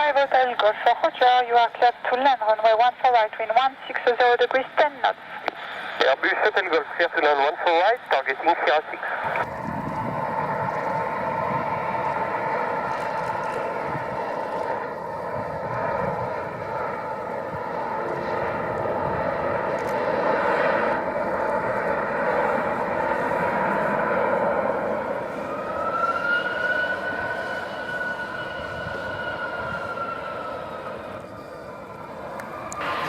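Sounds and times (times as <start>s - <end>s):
jet engines running: 0.0s - 33.0s
rising high whine: 9.2s - 33.0s.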